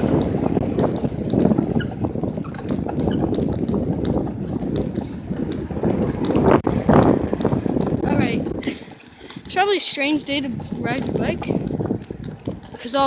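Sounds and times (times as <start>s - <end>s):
bicycle rattling and clicking: 0.0s - 13.0s
wind buffeting microphone: 0.0s - 13.0s.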